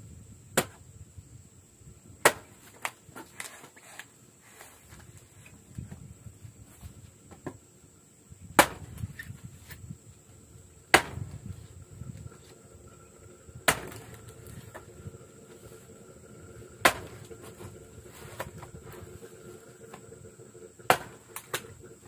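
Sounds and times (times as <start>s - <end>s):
sharp chopping blows: 0.5s - 0.8s, 2.2s - 2.9s, 8.6s - 9.2s, 10.9s - 11.5s, 13.7s - 14.1s, 16.8s - 17.2s, 20.9s - 21.6s.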